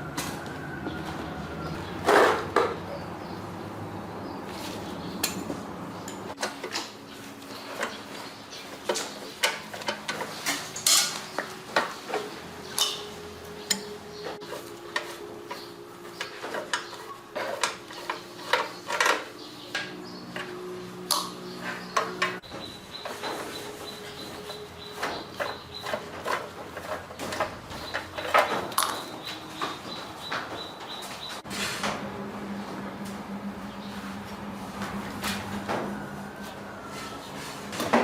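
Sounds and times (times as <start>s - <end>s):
metal tools clinking: 8.9s - 15.2s.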